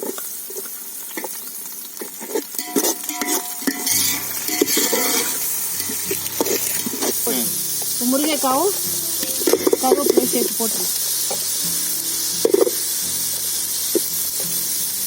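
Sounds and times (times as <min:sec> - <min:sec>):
spoon scraping a pan: 0:00.0 - 0:14.7
onions sizzling in oil: 0:00.0 - 0:15.0
spoon knocking against pan: 0:02.6 - 0:06.8, 0:11.2 - 0:11.5.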